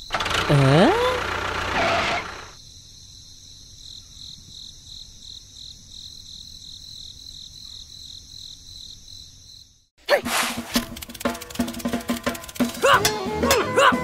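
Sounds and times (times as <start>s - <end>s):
insects chirping pulsing trill: 2.6s - 9.9s, 10.5s - 13.1s.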